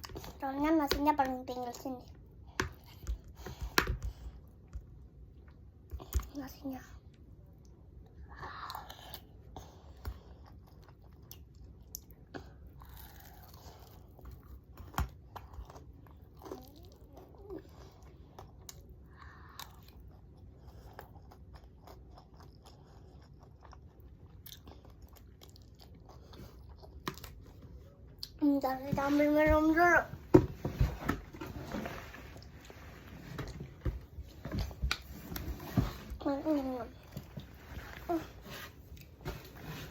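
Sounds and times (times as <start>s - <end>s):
person chewing food: 8.8s - 28.4s.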